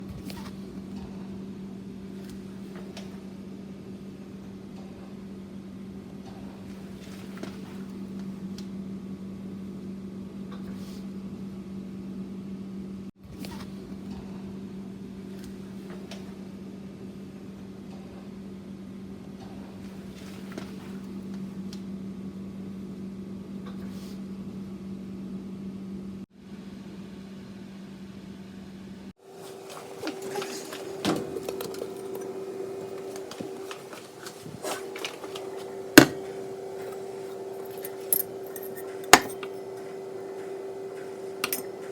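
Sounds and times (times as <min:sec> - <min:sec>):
microwave oven humming: 0:00.0 - 0:41.9.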